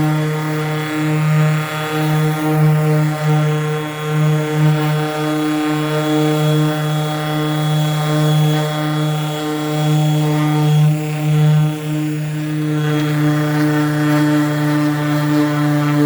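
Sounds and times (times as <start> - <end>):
power sander humming: 11.2 - 16.0.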